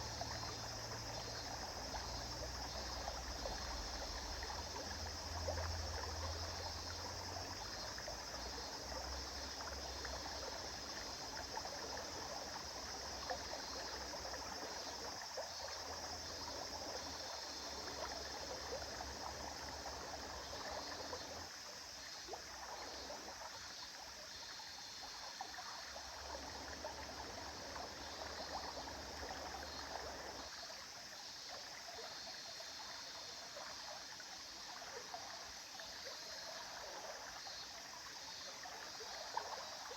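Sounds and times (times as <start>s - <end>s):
river flowing: 0.0s - 24.0s, 25.0s - 30.6s.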